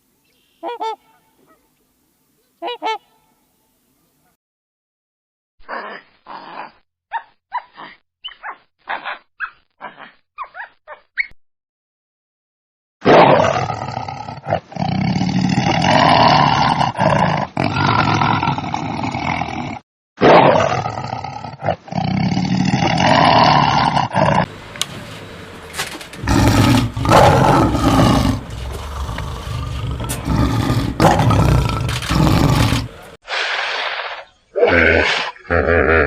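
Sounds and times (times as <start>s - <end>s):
wild animal calls: 26.1s - 35.7s.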